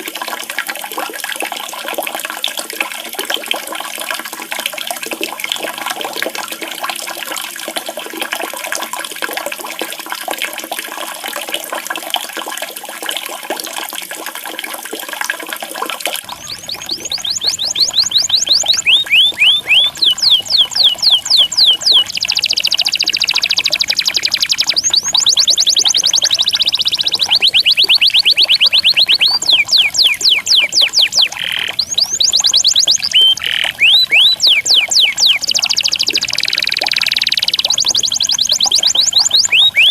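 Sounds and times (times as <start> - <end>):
water running and splashing: 0.0 - 39.9
songbird singing: 16.2 - 39.9.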